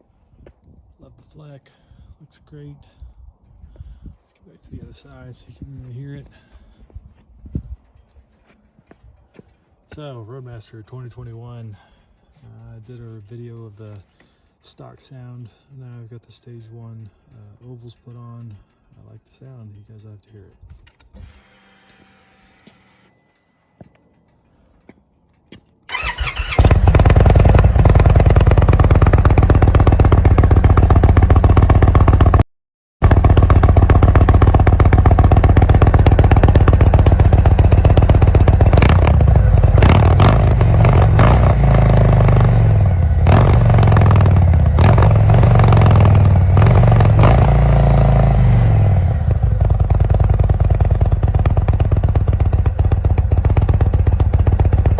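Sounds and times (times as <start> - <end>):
motorcycle engine idling and revving: 4.8 - 14.6, 23.8 - 54.9.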